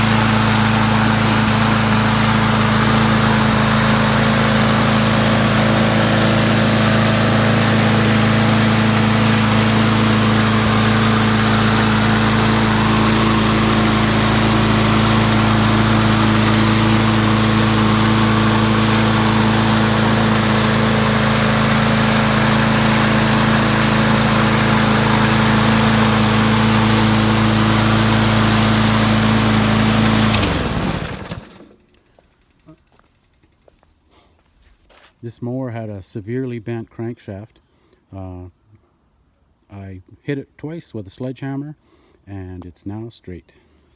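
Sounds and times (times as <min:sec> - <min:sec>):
lawn mower engine running: 0:00.0 - 0:33.7.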